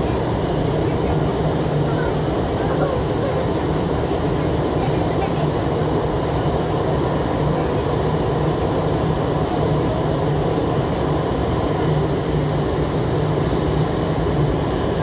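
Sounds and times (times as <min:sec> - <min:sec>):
constant low hum: 0:00.0 - 0:15.0.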